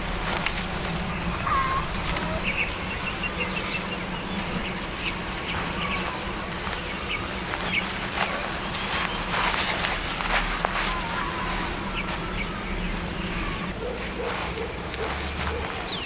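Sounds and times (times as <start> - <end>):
low steady hum: 0.0 - 14.9
outdoor background noise: 0.0 - 16.0
small birds chirping: 0.0 - 16.0.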